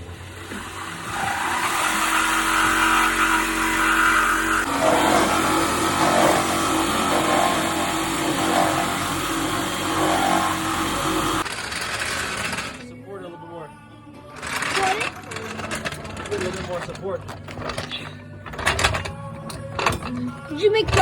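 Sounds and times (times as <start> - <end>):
power tool cutting steel pipe: 0.0 - 12.8.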